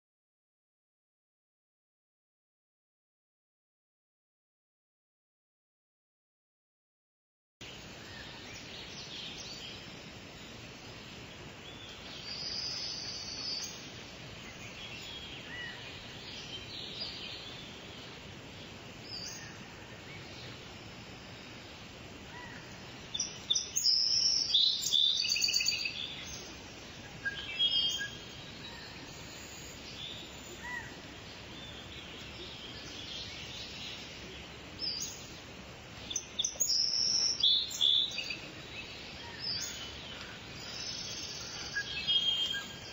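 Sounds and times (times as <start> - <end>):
background hiss: 7.6 - 42.9
wild birds singing: 7.6 - 42.9.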